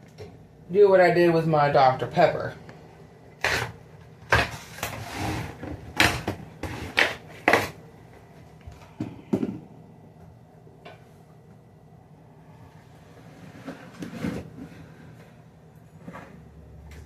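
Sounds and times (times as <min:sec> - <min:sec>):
groceries and fridge parts knocking: 0:03.5 - 0:07.8, 0:08.9 - 0:09.7.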